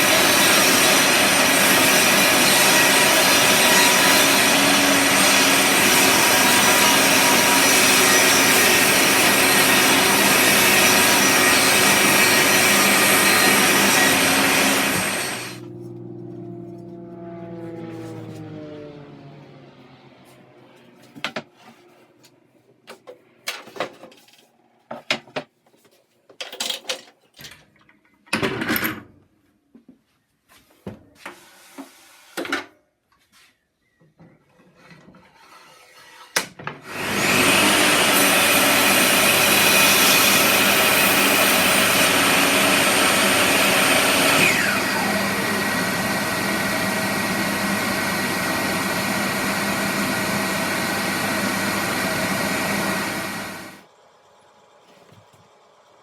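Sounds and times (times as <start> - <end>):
woodworking power tool running: 0.0 - 21.8, 36.8 - 56.0
wood and tools knocking and scraping: 20.3 - 36.9, 54.8 - 55.5.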